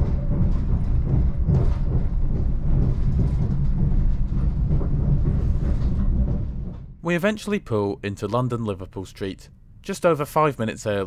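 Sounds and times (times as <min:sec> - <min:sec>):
train wheels on rails: 0:00.0 - 0:07.6.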